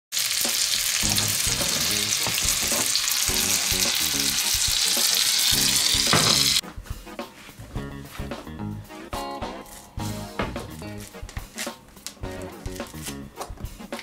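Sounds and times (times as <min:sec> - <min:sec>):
loud sizzle in a skillet: 0:00.1 - 0:06.6.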